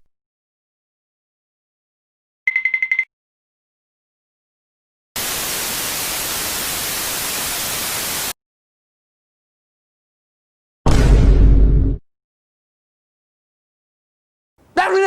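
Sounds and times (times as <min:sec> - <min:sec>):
white-noise static hiss: 0:05.2 - 0:08.3.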